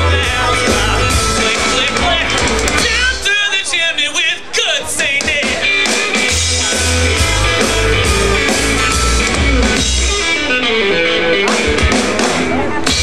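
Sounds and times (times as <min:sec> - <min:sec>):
heavy bass beat: 0:00.0 - 0:03.4, 0:05.0 - 0:10.4
person singing: 0:00.0 - 0:09.1
rock band playing: 0:00.0 - 0:13.0.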